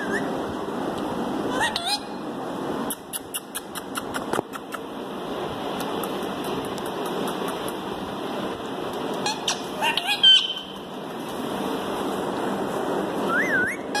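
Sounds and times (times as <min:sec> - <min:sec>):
parrot squawking: 0:00.0 - 0:00.4, 0:01.5 - 0:02.2, 0:09.2 - 0:10.8, 0:13.4 - 0:14.0
steady background noise: 0:00.0 - 0:14.0
parrot rising and falling whistle: 0:13.3 - 0:14.0.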